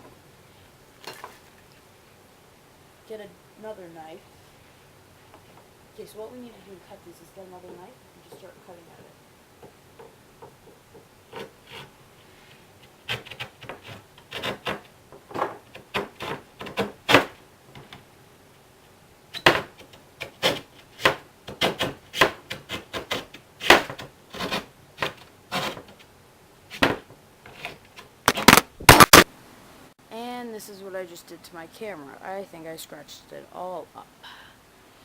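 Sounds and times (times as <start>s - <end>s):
knife scraping and cutting drywall: 11.3s - 17.4s, 19.4s - 26.0s, 26.7s - 28.1s.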